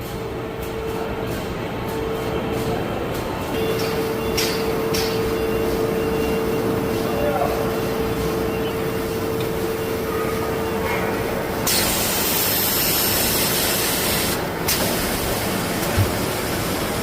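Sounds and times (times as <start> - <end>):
loud hiss: 11.6 - 15.4.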